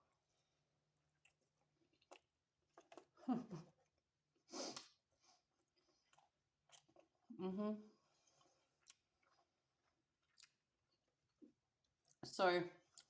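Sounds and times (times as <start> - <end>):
person chewing: 1.0 - 4.0, 4.6 - 7.3, 8.0 - 12.2.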